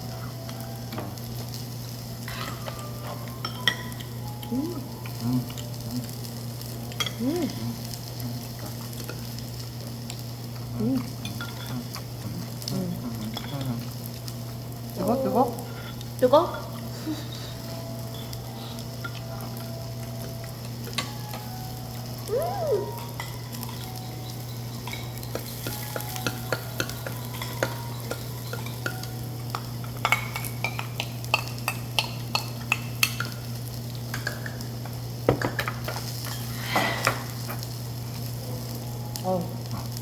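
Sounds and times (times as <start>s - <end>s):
meat sizzling on a grill: 0.0s - 40.0s
utensils clicking against dishes: 23.0s - 37.7s.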